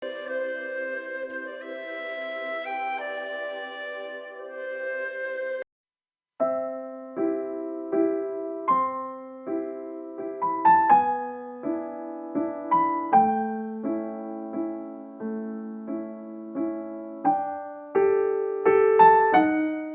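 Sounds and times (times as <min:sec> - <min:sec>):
gentle piano chords: 0:00.0 - 0:05.6, 0:06.4 - 0:19.9
held woodwind note: 0:00.0 - 0:05.6.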